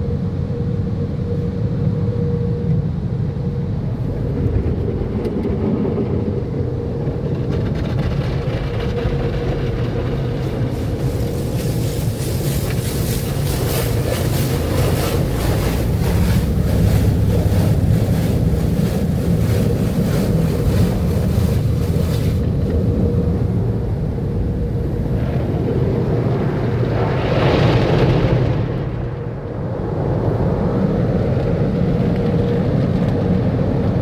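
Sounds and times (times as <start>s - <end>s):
steady low rumble: 0.0s - 34.0s
water spray hissing: 10.7s - 22.5s.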